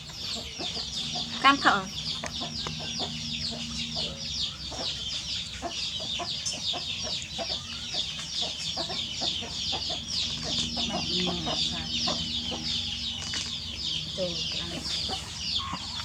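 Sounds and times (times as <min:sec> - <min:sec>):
chickens peeping: 0:00.0 - 0:16.0.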